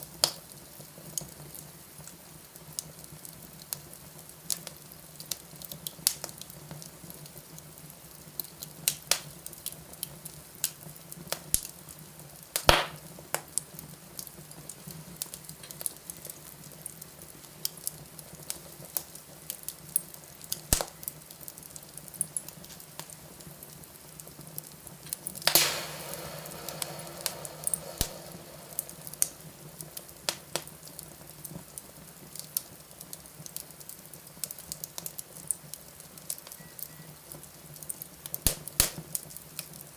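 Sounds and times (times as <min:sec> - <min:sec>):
fireplace fire crackling: 0:00.0 - 0:39.9
fire hissing: 0:10.4 - 0:34.9.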